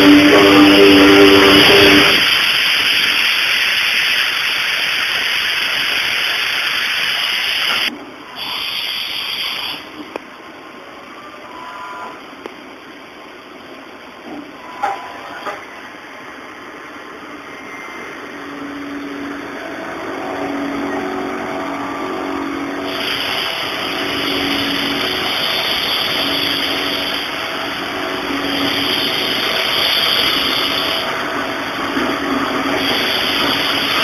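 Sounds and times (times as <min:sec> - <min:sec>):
cutting hiss: 0:00.0 - 0:10.0, 0:22.8 - 0:31.2, 0:32.6 - 0:34.0
milling machine running: 0:18.6 - 0:34.0.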